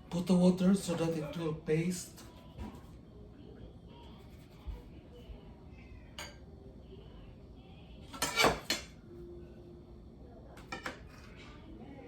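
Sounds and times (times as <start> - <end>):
dishes and cutlery clattering: 8.1 - 9.0, 10.6 - 11.5.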